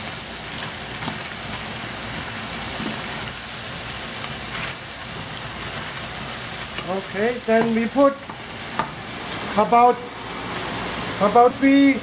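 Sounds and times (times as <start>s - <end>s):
crab claws sizzling in oil: 0.0s - 12.0s.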